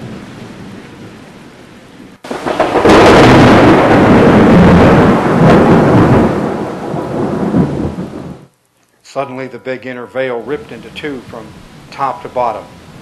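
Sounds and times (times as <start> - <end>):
rain-like hiss: 0.0 - 13.0
thunder peal rolling: 2.2 - 8.5.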